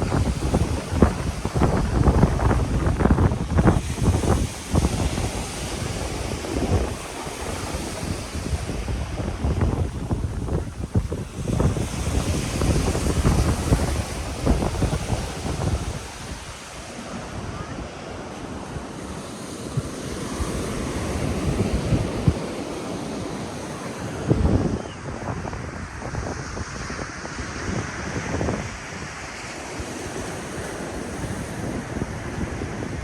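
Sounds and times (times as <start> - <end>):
ocean surf on beach: 0.0 - 33.0
wind buffeting microphone: 0.0 - 33.0.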